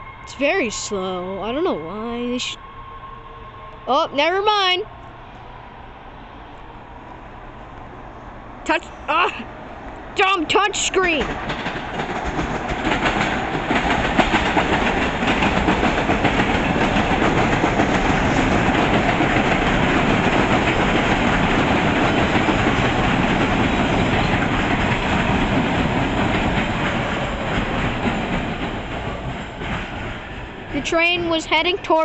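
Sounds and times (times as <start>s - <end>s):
train wheels clattering: 9.9s - 32.0s.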